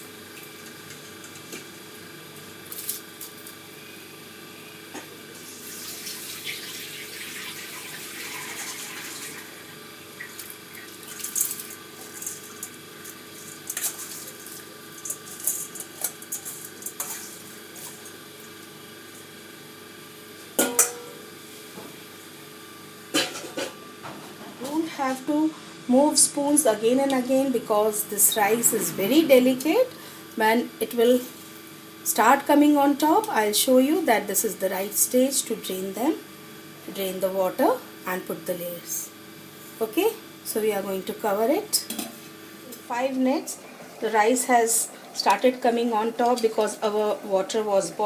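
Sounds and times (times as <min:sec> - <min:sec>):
kitchen hum: 0:00.0 - 0:48.0
water pouring and splashing: 0:05.6 - 0:12.3.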